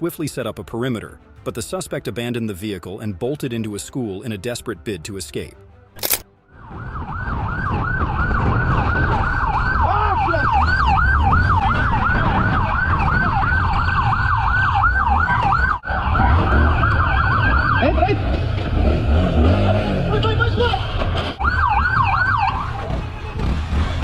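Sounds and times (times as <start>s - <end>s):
police siren yelping: 6.5s - 18.4s, 21.4s - 23.0s
vehicle rumble: 6.6s - 24.0s.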